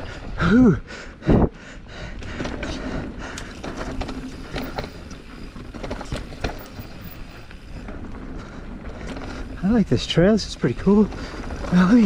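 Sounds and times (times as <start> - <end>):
bike tyres rolling over dirt: 1.6 - 12.0
bike chain and frame rattling: 1.9 - 12.0.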